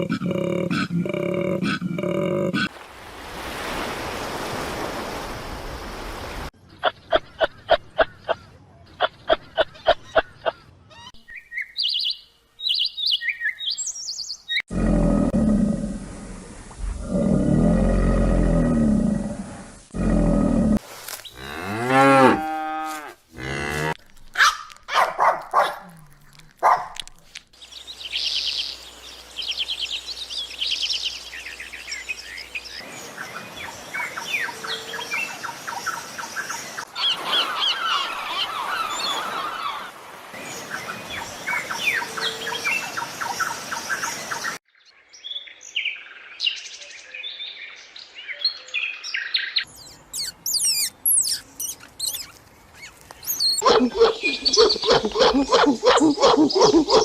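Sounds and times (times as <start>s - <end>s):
deep bellowing animal calls: 14.7s - 20.8s
short bird chirps: 49.5s - 53.6s.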